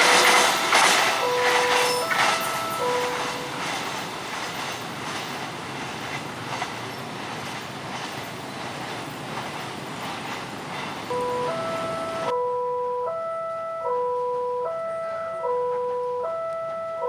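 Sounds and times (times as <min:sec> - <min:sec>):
two-tone electronic warning chime: 0:00.0 - 0:04.1, 0:11.1 - 0:17.0
train wheels rushing on rails: 0:00.0 - 0:12.3
rail joint clicks: 0:00.0 - 0:12.4, 0:13.1 - 0:17.0.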